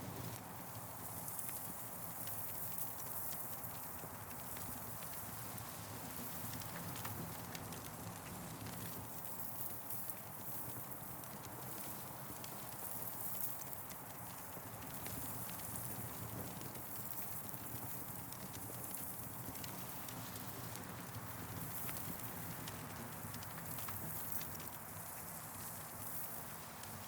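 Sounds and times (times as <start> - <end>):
campfire crackling and popping: 6.2 - 27.0.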